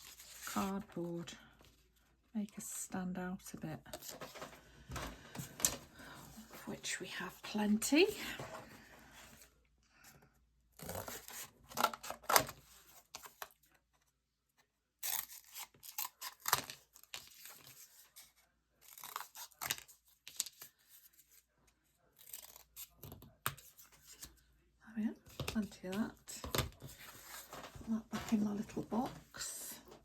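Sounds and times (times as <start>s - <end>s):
cardboard and paper rustling: 0.0s - 2.1s, 3.9s - 9.6s, 10.8s - 14.1s, 15.3s - 24.5s, 25.2s - 30.0s
paper tearing: 15.0s - 17.9s, 18.8s - 20.4s, 22.2s - 23.0s.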